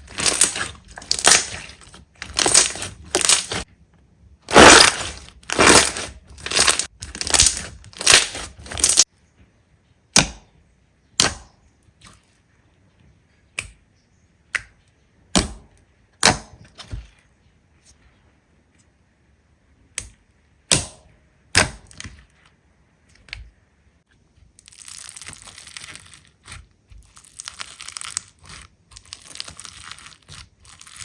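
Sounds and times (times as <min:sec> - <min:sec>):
crunchy slime crackling: 0:00.0 - 0:03.7, 0:04.5 - 0:09.1, 0:24.3 - 0:31.0.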